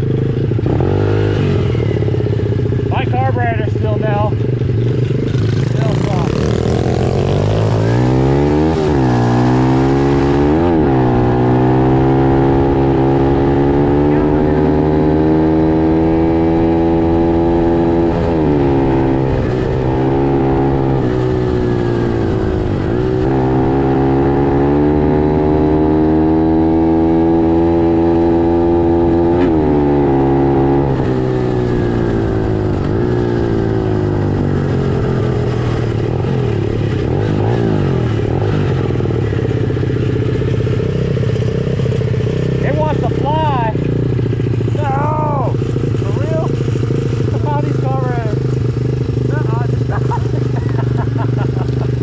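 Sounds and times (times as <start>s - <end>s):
pit bike engine revving: 0.0s - 52.0s.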